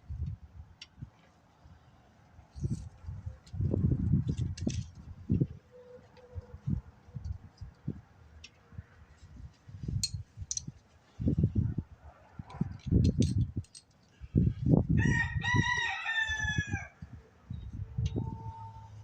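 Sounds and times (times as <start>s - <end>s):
rooster crowing: 15.0s - 17.0s.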